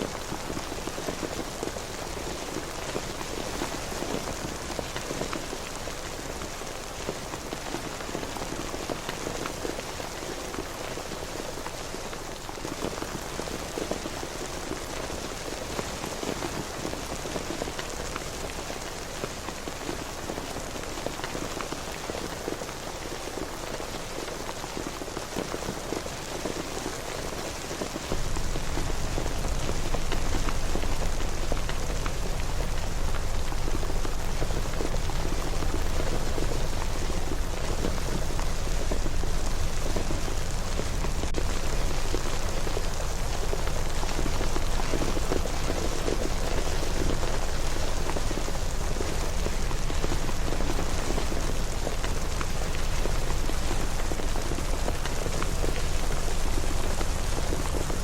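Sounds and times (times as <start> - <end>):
steady rain falling: 0.0 - 58.0
deep low rumble: 28.1 - 46.7.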